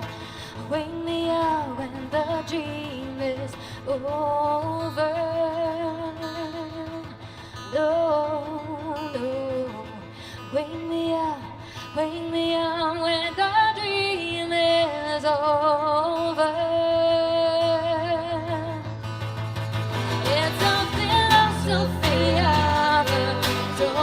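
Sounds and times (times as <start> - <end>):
woman singing with vibrato: 0.0 - 19.0, 20.0 - 24.0.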